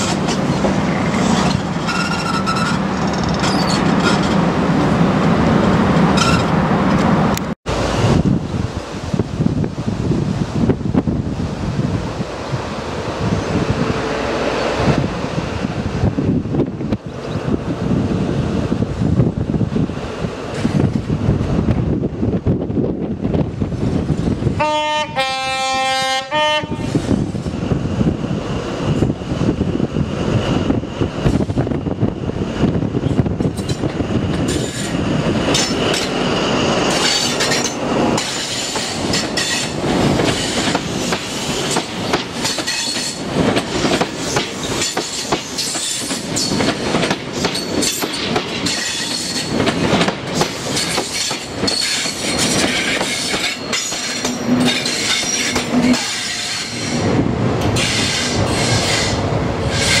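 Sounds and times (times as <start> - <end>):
wheels clacking over rail joints: 0.0 - 4.6, 33.4 - 57.0
diesel train engine: 0.0 - 9.5, 11.3 - 60.0
high wheel squeal: 1.0 - 4.4.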